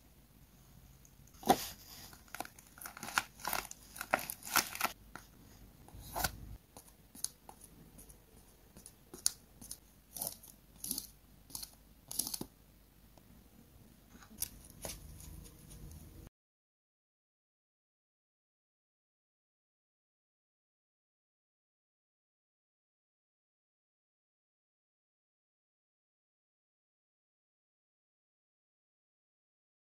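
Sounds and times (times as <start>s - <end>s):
paper crinkling and tearing: 1.5s - 5.0s.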